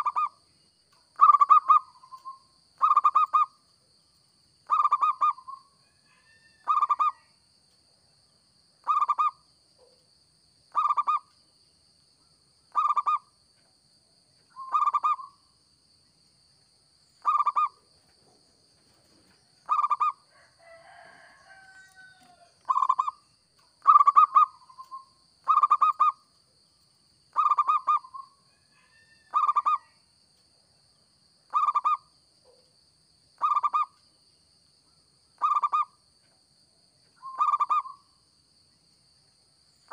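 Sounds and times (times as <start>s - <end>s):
dove cooing: 19.6s - 20.2s, 23.8s - 26.2s, 37.2s - 37.9s.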